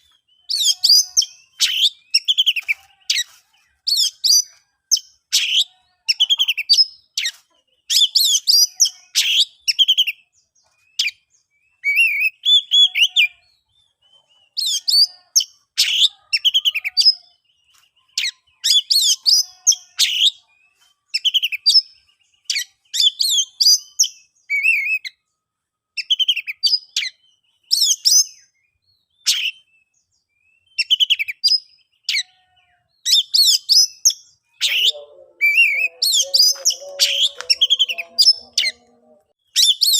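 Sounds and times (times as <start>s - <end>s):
bird singing whistles and chirps: 0.0s - 25.3s, 25.9s - 39.9s.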